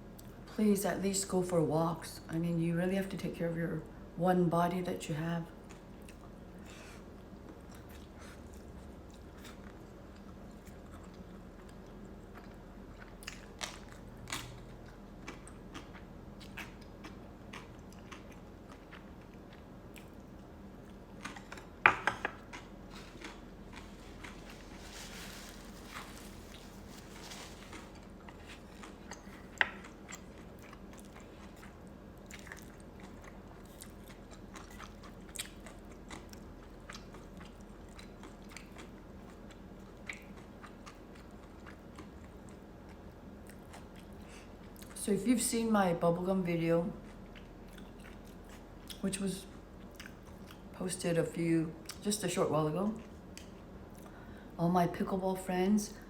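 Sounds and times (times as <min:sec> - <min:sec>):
chewing food: 0:05.6 - 0:45.0, 0:47.0 - 0:50.8.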